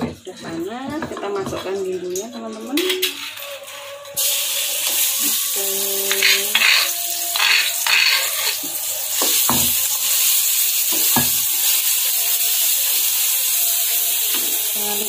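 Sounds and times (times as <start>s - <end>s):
spice paste sizzling in oil: 4.2s - 15.0s
metal spatula scraping wok: 6.0s - 11.9s.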